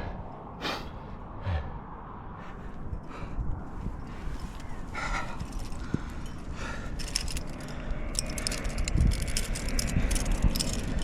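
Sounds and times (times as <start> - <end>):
low rumble: 0.0 - 4.3
metal climbing gear clinking: 3.8 - 11.0.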